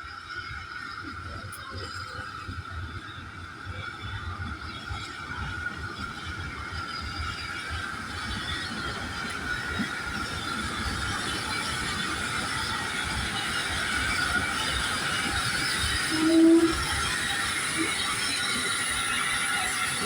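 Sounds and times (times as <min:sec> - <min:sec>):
train wagons rolling on rails: 0:00.0 - 0:20.0
short low squeal: 0:16.0 - 0:18.6.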